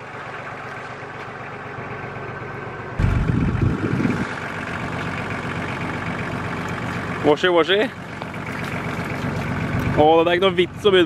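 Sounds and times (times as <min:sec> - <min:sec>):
engine idling: 0:00.0 - 0:11.0
loud low rumble: 0:02.9 - 0:06.6.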